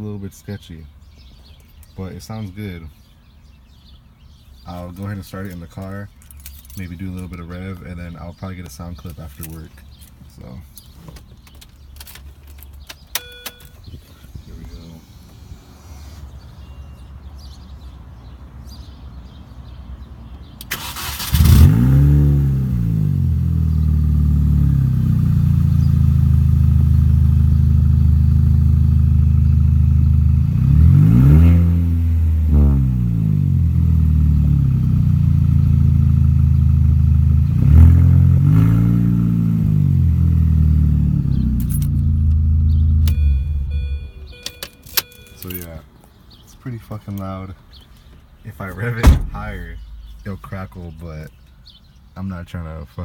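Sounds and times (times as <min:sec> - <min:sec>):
engine revving: 0:20.7 - 0:44.4.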